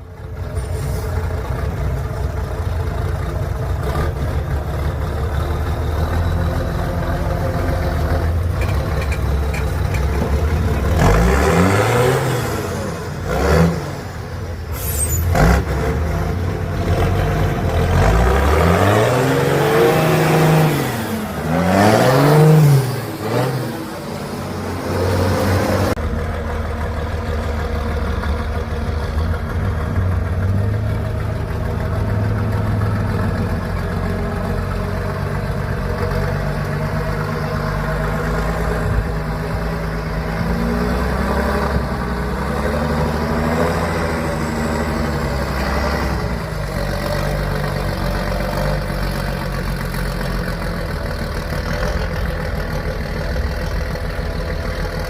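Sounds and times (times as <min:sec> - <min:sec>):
truck engine revving: 0:00.0 - 0:55.0.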